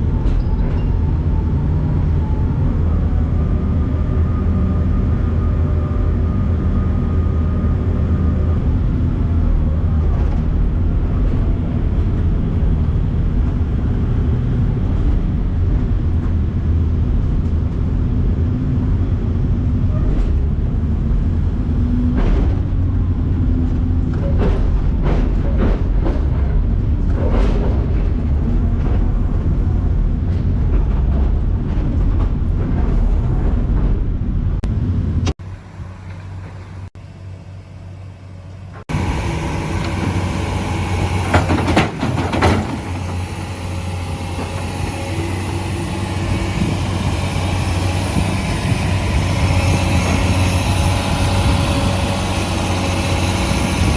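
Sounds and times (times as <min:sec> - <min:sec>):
heavy machinery engine rumble: 0:00.0 - 0:53.9
knocks and clanks: 0:21.9 - 0:35.4, 0:38.8 - 0:53.9.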